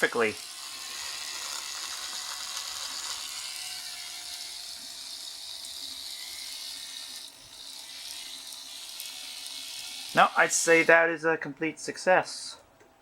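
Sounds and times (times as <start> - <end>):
model locomotive motor whirring: 0.0 - 11.1.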